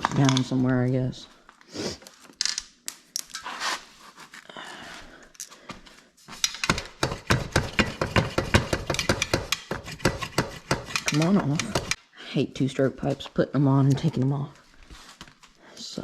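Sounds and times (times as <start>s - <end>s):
hand tools clicking and scraping metal: 5.0s - 12.0s.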